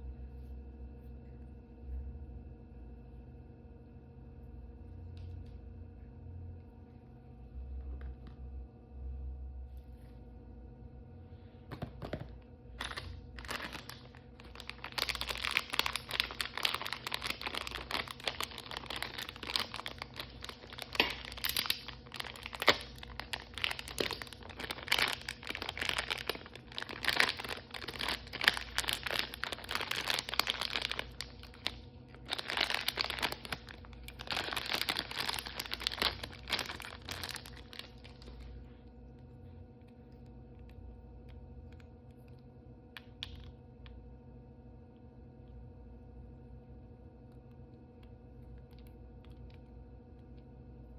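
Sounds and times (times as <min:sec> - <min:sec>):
plastic wrapper crinkling: 0:12.7 - 0:38.7.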